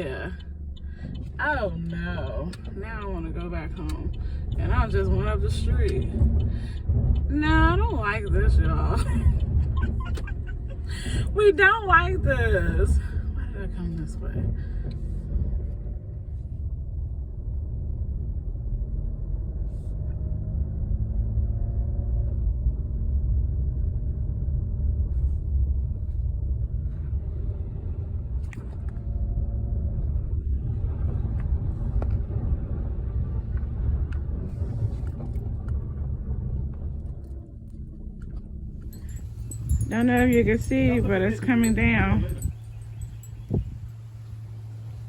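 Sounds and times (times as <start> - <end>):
car engine and tyres rumbling: 0.0 - 45.0.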